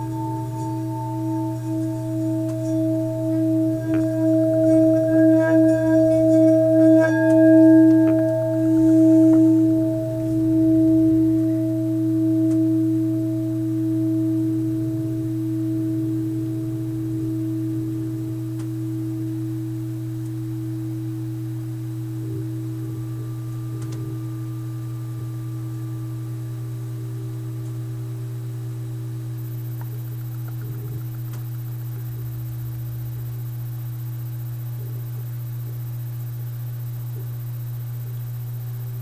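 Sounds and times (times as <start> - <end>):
singing bowl tone: 0.0 - 34.9.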